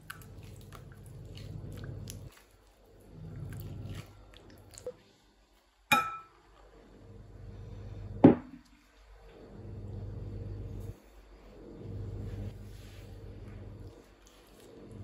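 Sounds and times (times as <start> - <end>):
low steady hum: 0.0 - 15.0
dishes clinking: 5.9 - 6.3.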